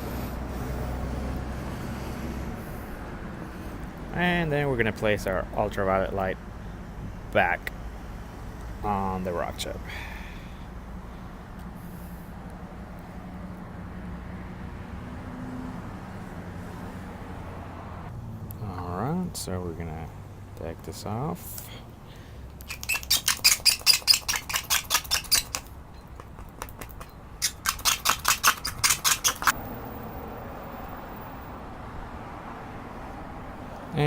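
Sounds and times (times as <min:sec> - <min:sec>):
razor blade scraping glass: 0:22.6 - 0:25.7, 0:26.8 - 0:29.6.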